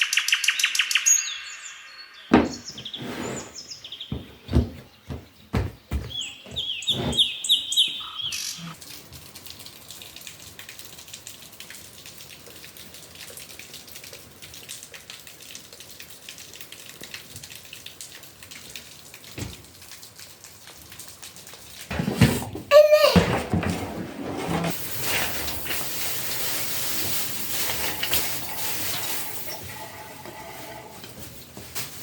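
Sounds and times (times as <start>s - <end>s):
bird chirping: 0.0s - 8.8s
dull knocks: 2.3s - 3.0s, 4.1s - 7.4s
rain falling: 8.7s - 22.0s, 24.7s - 32.0s.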